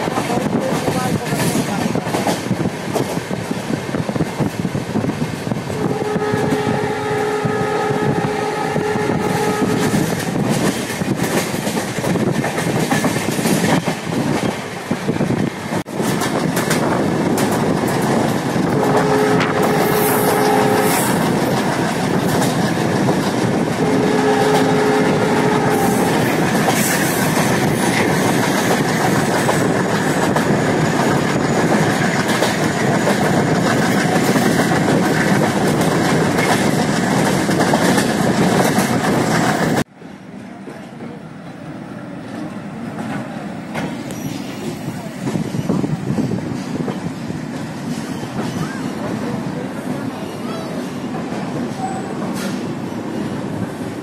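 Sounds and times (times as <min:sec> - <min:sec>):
train rumble: 0:00.0 - 0:54.0
train horn blasts: 0:05.8 - 0:10.3, 0:18.6 - 0:21.3, 0:23.7 - 0:26.4
wheels clicking over rails: 0:25.7 - 0:39.9.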